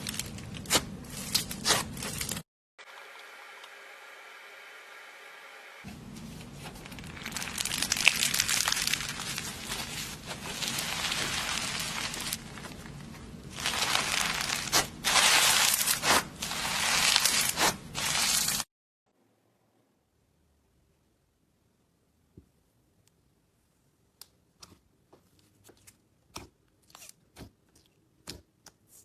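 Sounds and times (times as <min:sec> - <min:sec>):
slime squishing and crackling: 0:06.6 - 0:18.7.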